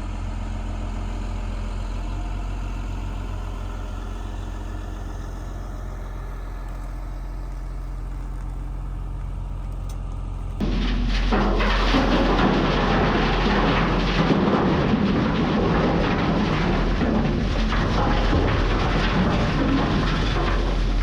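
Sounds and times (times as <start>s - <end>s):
diesel truck engine running: 0.0s - 21.0s
loose rock sliding: 10.5s - 21.0s.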